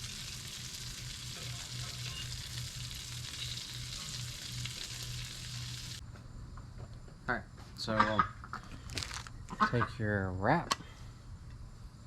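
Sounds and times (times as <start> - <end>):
fish frying in hot oil: 0.0 - 6.0.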